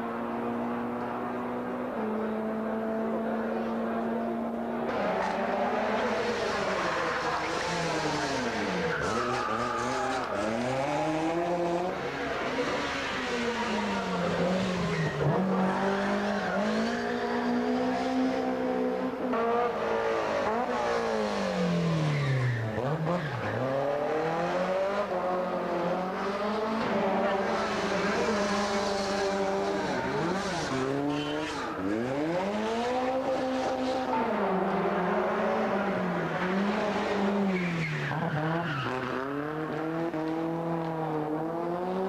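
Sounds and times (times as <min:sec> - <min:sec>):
rally car engines revving: 0:00.0 - 0:42.0
tyre squeal: 0:06.7 - 0:11.2, 0:27.8 - 0:32.4.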